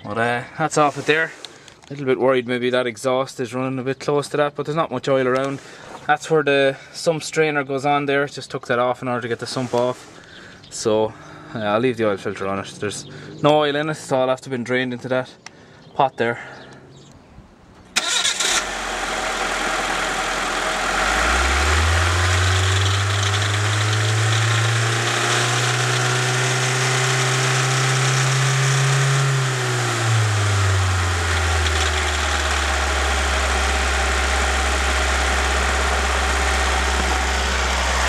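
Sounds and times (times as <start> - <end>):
petrol engine starting and revving: 11.0 - 13.7, 17.9 - 38.0.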